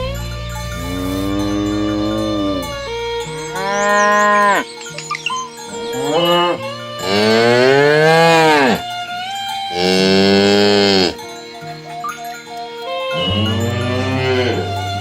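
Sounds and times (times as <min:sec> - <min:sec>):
cattle mooing: 0:00.7 - 0:05.2, 0:06.0 - 0:08.8, 0:09.7 - 0:11.2, 0:13.1 - 0:15.0.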